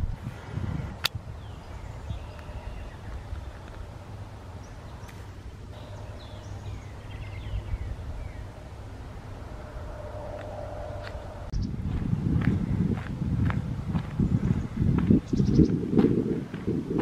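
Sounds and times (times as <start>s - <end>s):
low rumble: 0.0s - 15.2s
songbird chirps: 1.1s - 13.1s
faint hum: 1.4s - 12.5s.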